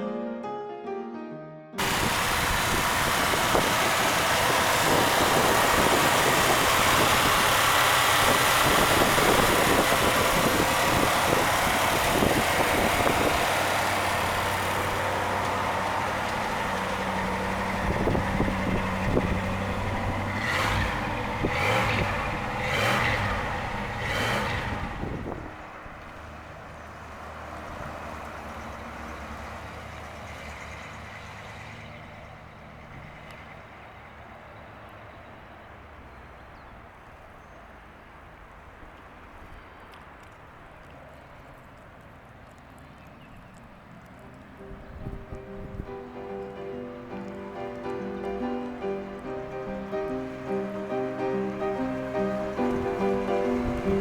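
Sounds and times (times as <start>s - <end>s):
car engine running and revving: 1.8s - 33.6s, 47.2s - 54.0s.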